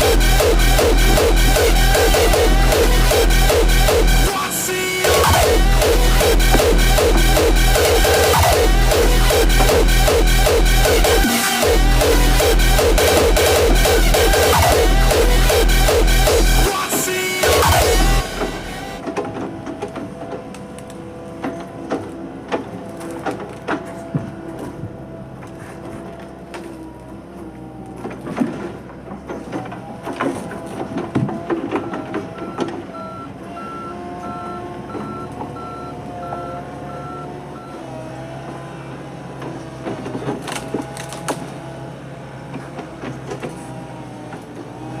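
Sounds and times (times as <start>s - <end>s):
warning alarm beeping: 0.0s - 19.0s, 31.8s - 37.9s
excavator engine running: 0.0s - 45.0s.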